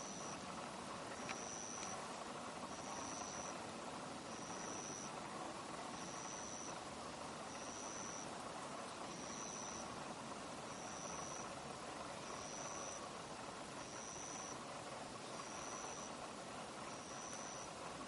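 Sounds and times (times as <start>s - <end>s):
insect chirping: 0.0s - 0.4s, 1.1s - 2.0s, 2.6s - 3.6s, 4.2s - 5.1s, 5.9s - 6.9s, 7.5s - 8.3s, 9.0s - 9.9s, 10.7s - 11.6s, 12.2s - 13.1s, 13.8s - 14.6s, 15.2s - 16.2s, 16.9s - 17.8s
steady outdoor hiss: 0.0s - 18.0s.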